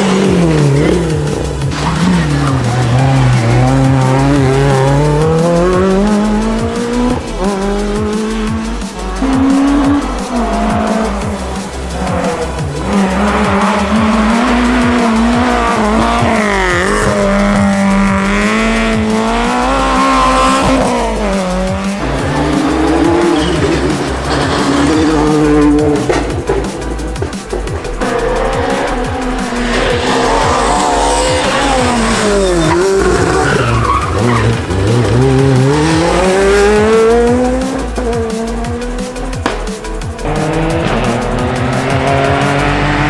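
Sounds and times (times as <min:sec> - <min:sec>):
rally car engine revving: 0:00.0 - 0:43.0
tyres squealing: 0:28.1 - 0:36.6.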